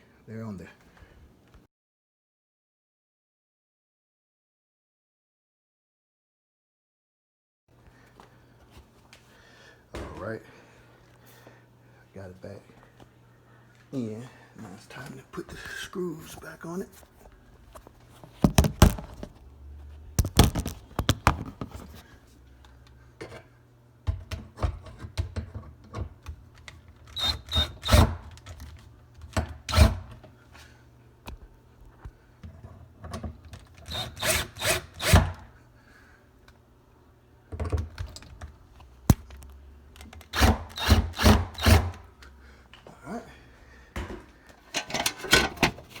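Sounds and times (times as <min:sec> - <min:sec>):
screwdriver fastening screws: 0:27.0 - 0:28.6, 0:33.7 - 0:35.4, 0:40.0 - 0:42.0.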